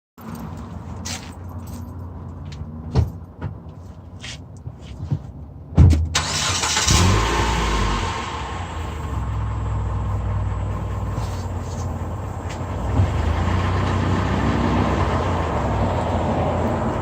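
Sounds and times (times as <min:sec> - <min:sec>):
car engine humming: 0:06.1 - 0:17.0.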